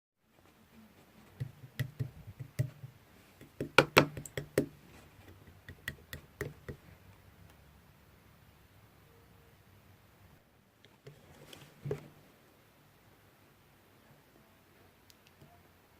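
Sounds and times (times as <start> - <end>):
hard objects knocking and clicking: 1.4 - 6.8.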